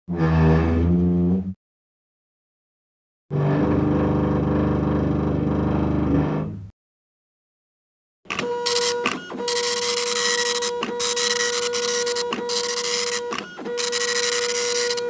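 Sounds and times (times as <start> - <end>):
printer buzzing print stroke: 8.3 - 15.0.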